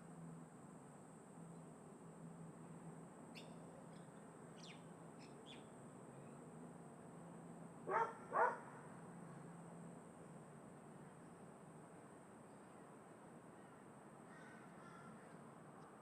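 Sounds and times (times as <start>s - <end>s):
small birds chirping: 3.3s - 6.4s
crow cawing: 14.3s - 15.4s.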